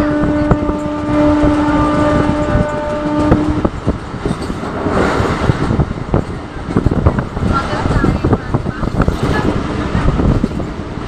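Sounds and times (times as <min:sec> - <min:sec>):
train horn steady note: 0:00.0 - 0:03.8
moving train rumble and clatter: 0:00.0 - 0:11.0.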